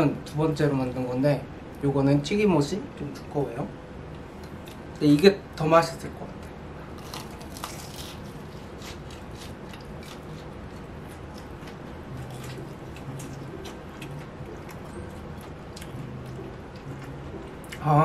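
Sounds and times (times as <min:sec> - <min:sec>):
crunchy food chewing: 0:07.0 - 0:17.8.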